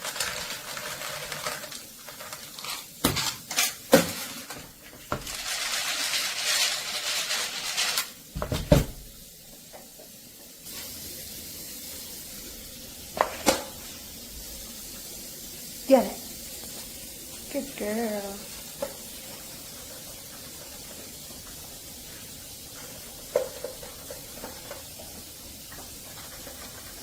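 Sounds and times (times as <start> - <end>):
scraping and rustling: 0.0 - 8.2, 18.5 - 27.0.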